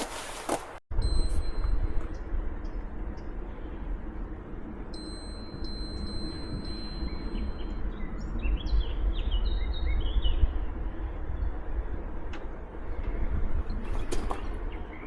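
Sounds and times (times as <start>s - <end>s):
thin high tone: 1.0s - 2.2s, 4.9s - 7.8s
low steady rumble: 1.0s - 15.0s
songbird chirping: 5.0s - 10.6s.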